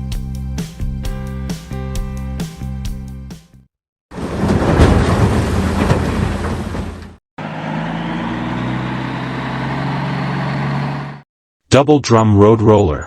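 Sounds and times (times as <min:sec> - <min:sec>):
loud heavy machine noise: 0:04.2 - 0:11.2
construction machine engine humming: 0:06.1 - 0:11.2.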